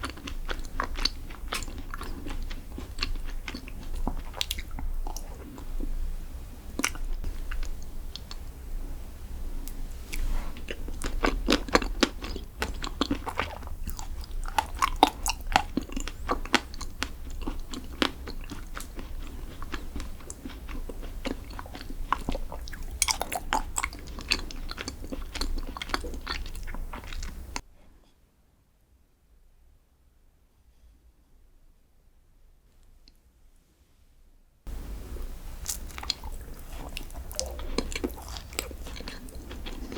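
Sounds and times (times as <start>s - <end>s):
chewing and crunching: 0.0s - 8.6s, 9.6s - 27.6s, 34.7s - 39.9s
steady low hum: 0.0s - 27.6s, 34.7s - 39.9s.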